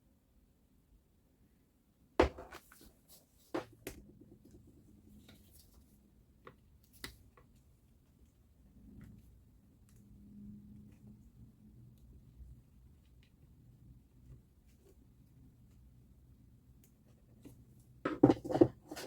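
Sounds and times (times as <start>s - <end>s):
tools set down on workbench: 2.2s - 2.7s.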